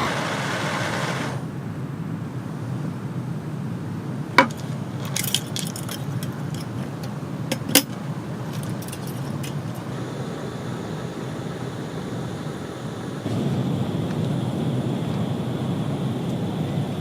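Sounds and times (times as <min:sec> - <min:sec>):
rain-like rushing: 0:00.0 - 0:01.8, 0:04.3 - 0:17.0
metal and glass clinks: 0:04.4 - 0:09.8.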